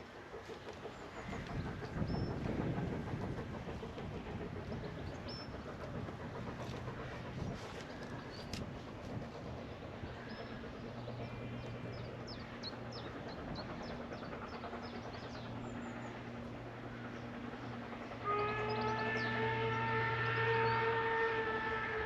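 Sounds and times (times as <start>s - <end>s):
steam locomotive rumble: 0.0s - 22.0s
steam whistle: 18.2s - 22.0s.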